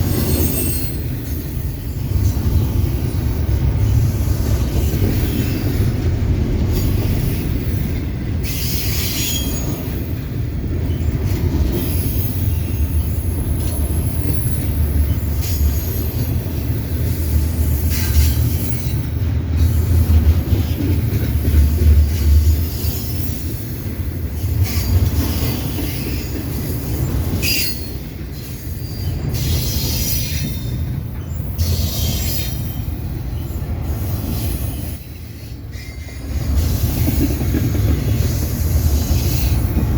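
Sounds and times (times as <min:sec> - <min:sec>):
train wheels rumbling on rail: 0:00.0 - 0:39.9
high-pitched wheel squeals: 0:27.4 - 0:28.0.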